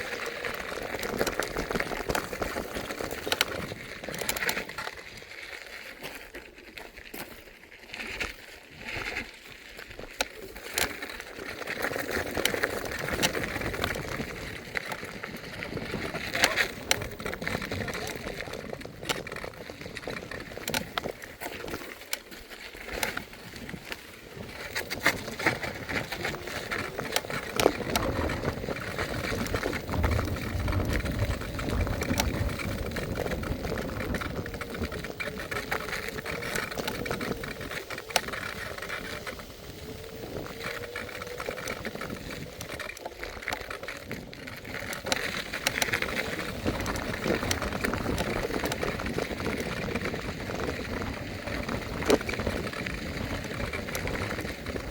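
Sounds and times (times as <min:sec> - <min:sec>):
electric scooter motor whine: 0:00.0 - 0:54.9
clicks and rattles: 0:15.9 - 0:39.4.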